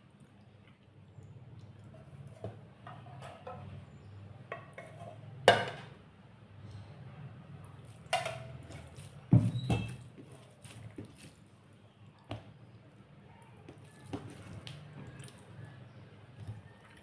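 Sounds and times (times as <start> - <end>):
dishes and cutlery clinking: 4.5 - 5.9, 8.1 - 8.8.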